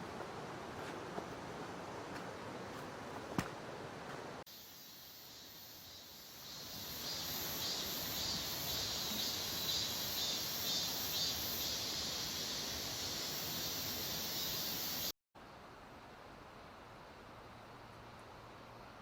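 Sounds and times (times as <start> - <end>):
insects chirping: 4.5 - 15.1.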